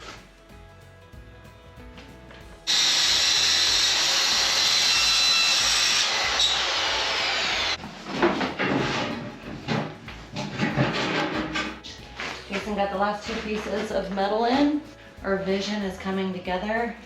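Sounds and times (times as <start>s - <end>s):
soft background music: 0.0s - 2.7s, 7.8s - 17.0s
power drill driving screw into metal: 2.7s - 7.8s.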